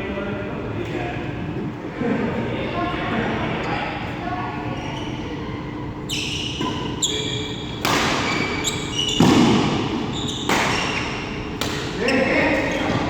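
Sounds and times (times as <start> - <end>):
racket striking shuttlecock: 7.8 - 8.4, 9.2 - 11.0
short high squeaks: 8.2 - 9.3.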